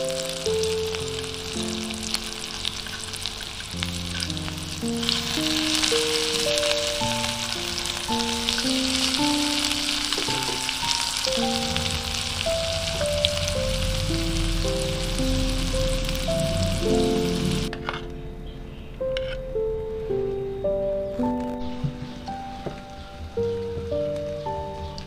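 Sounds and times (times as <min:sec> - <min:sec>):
food sizzling in a pan: 0:00.0 - 0:17.7
gentle melodic music: 0:00.0 - 0:25.0.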